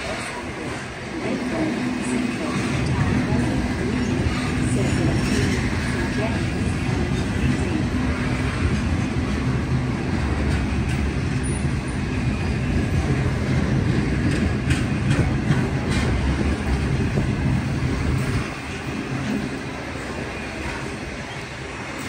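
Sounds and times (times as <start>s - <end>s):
freight train wagons rumbling: 0.0s - 22.0s.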